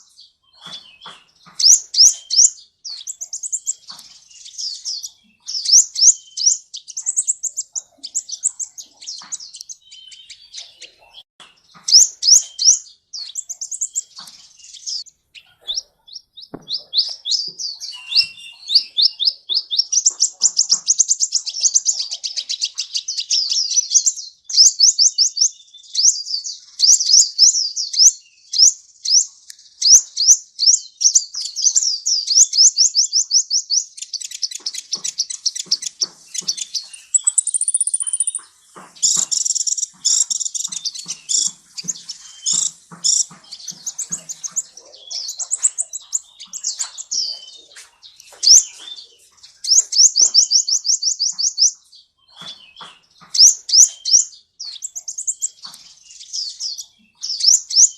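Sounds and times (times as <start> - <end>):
bird chirping: 0.0 - 57.9
thin high bird whistle: 17.8 - 19.0, 36.9 - 39.6.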